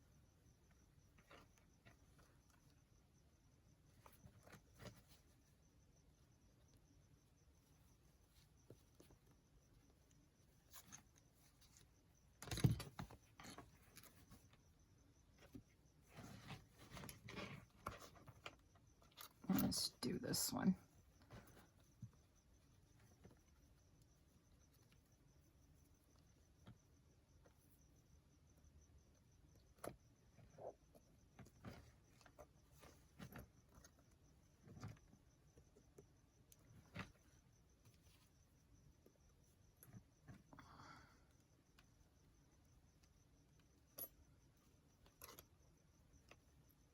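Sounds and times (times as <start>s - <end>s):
materials rustling and rubbing: 15.4s - 18.6s.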